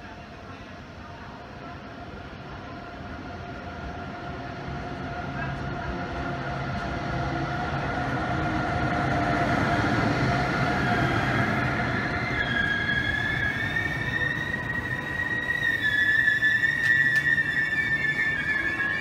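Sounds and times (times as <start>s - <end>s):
train rolling along platform: 0.0s - 19.0s
high brake squeal: 10.8s - 19.0s
train coaches clattering: 12.1s - 19.0s.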